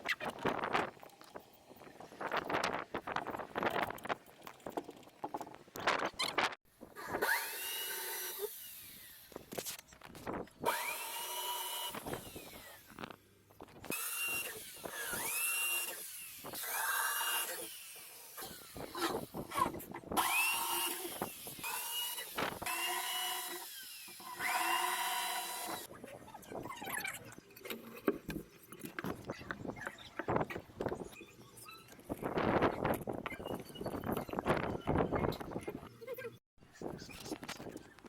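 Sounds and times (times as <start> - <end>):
small electric motor whirring: 7.0 - 9.9, 10.6 - 25.9.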